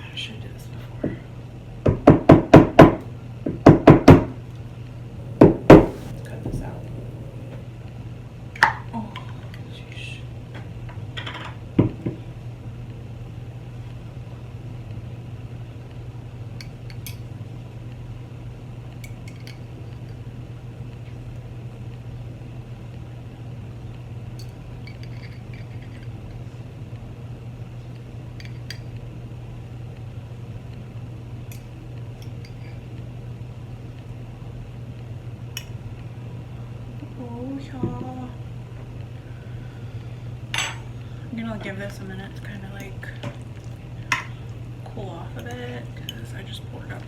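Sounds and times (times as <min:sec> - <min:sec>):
low hum: 0:04.5 - 0:09.4
dishes and utensils clinking: 0:40.5 - 0:40.9.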